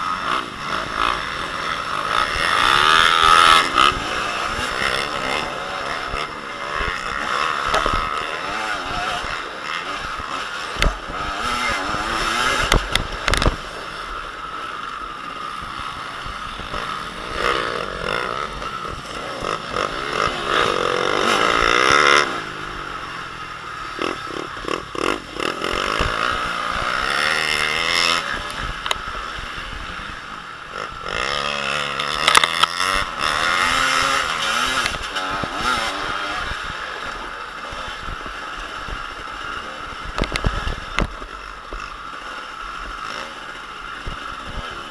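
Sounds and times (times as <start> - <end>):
motocross motorcycle engines revving: 0.0 - 44.9.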